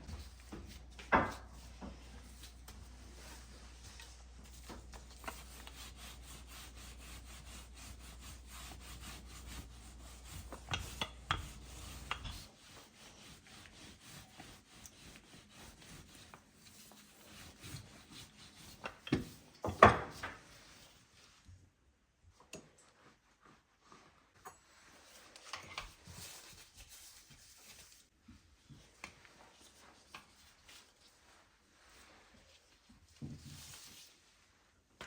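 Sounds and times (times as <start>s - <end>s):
rubbing and scraping on wood: 0.0s - 20.8s.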